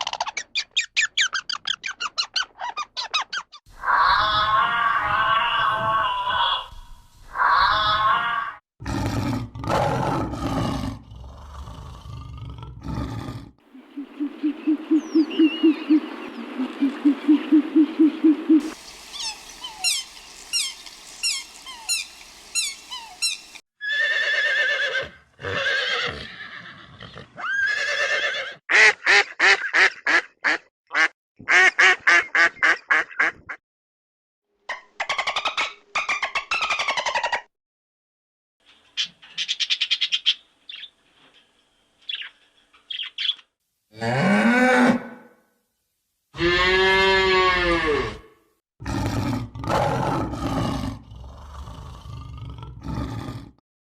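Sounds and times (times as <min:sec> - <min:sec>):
farm animal calls: 0:13.8 - 0:28.6
rapid high chirps: 0:18.2 - 0:23.6.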